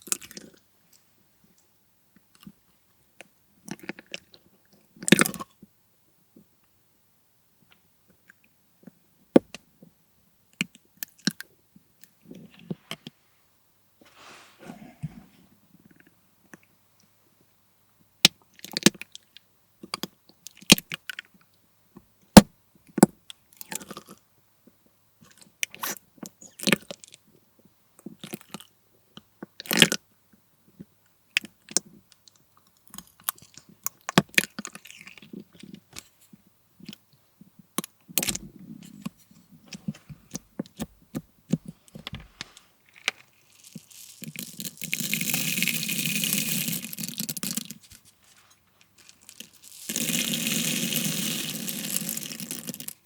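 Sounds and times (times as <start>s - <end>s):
crunchy slime crackling and popping: 42.9s - 47.9s, 48.8s - 53.0s.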